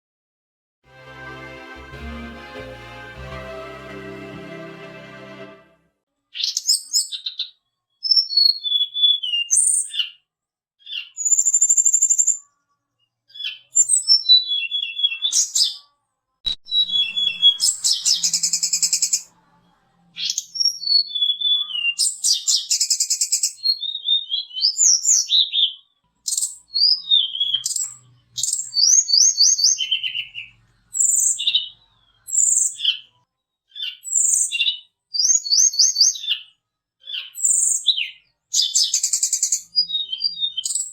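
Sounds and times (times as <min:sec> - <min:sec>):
songbird whistling and trilling: 0:08.1 - 0:10.1, 0:20.2 - 0:30.4, 0:32.3 - 0:33.0, 0:33.7 - 0:36.5, 0:37.1 - 0:40.9.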